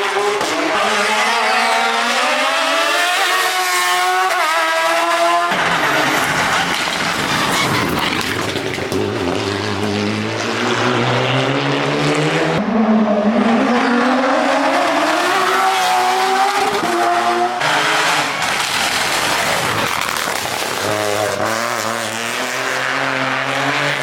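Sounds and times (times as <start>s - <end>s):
race car engine accelerating: 0.0s - 24.0s.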